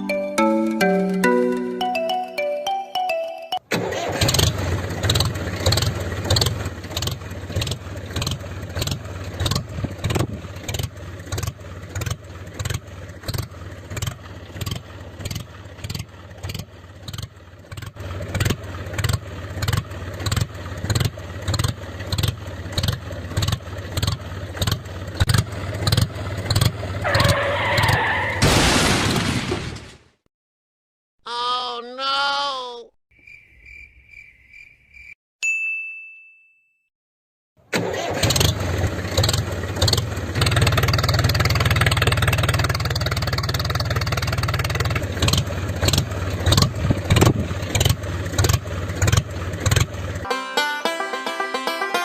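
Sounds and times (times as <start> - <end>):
small engine chugging: 4.0 - 27.5, 37.8 - 50.3.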